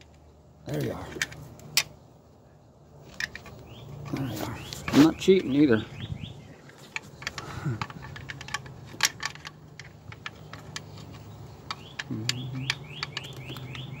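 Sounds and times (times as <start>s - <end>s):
bird chirping: 3.4s - 8.7s, 10.2s - 14.0s
hand tools tapping on metal: 6.7s - 14.0s.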